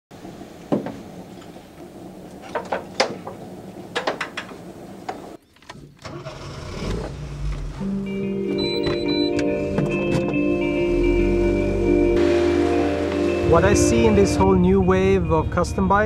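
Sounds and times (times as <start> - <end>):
music with bell-like tones: 8.0 - 16.0
car engine from inside cabin: 9.4 - 14.5.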